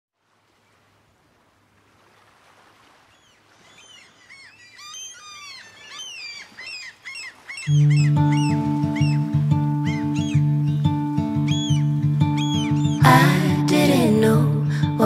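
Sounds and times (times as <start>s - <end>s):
birds chirping: 3.0s - 13.7s.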